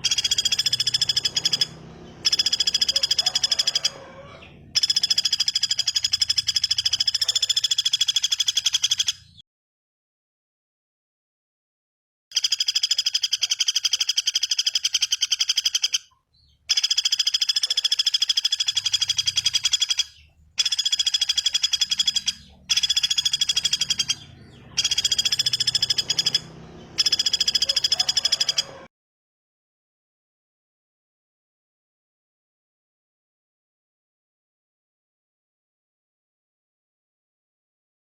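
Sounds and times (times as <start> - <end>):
songbird buzzy rattling trill: 0.0 - 9.4, 12.3 - 28.9.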